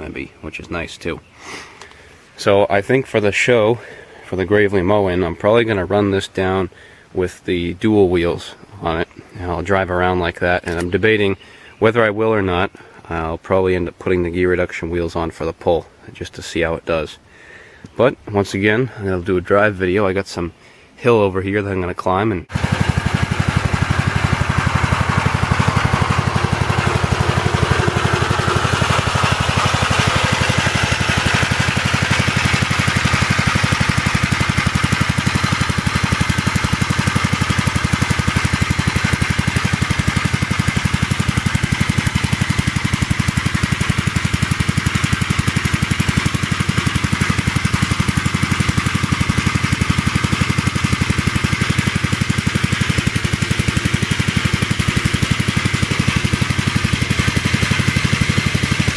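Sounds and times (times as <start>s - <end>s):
single-cylinder tractor engine running: 22.5s - 58.9s.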